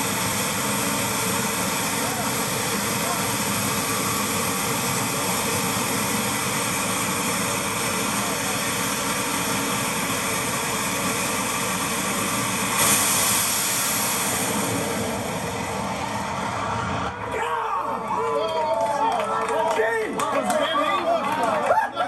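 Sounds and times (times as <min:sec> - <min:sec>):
jet engine rushing hiss: 0:00.0 - 0:17.3.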